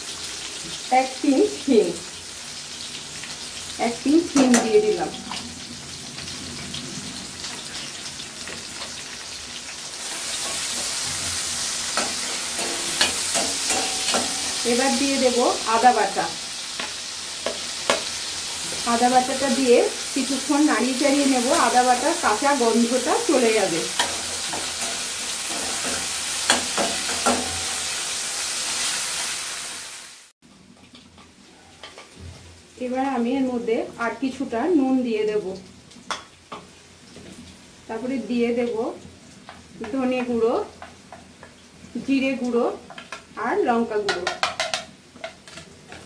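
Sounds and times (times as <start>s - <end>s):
food sizzling in hot oil: 0.0s - 46.0s
spatula scraping a pan: 10.0s - 15.3s, 23.6s - 29.1s.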